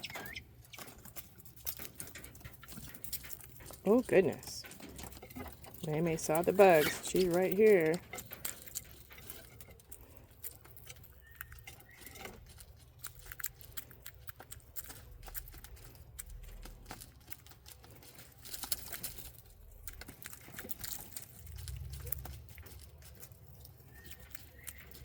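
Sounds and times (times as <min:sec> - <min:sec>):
faint bird chirp: 0:00.0 - 0:00.9, 0:11.1 - 0:12.3, 0:23.8 - 0:25.0
quail pecking and scratching: 0:00.0 - 0:25.0.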